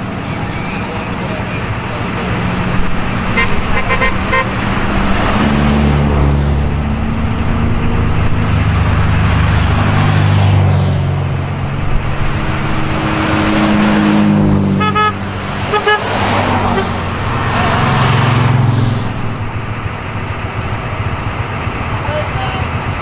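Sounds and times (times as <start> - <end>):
race car engines passing: 0.0 - 23.0
car horn toots: 3.2 - 4.7, 14.7 - 17.0.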